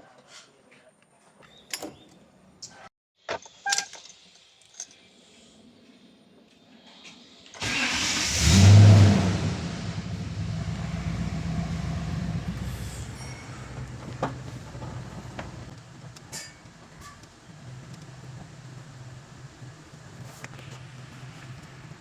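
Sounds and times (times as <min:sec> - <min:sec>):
engine starting and idling: 0:07.6 - 0:15.7.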